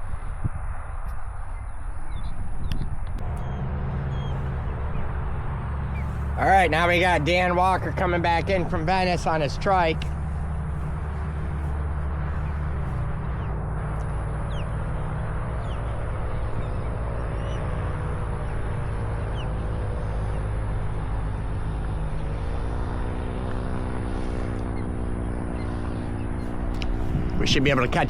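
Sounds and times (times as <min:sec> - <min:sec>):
paramotor engine droning: 0:00.0 - 0:28.0
wind rumbling on microphone: 0:00.0 - 0:28.0
bird chirps: 0:01.5 - 0:05.2, 0:09.9 - 0:22.7.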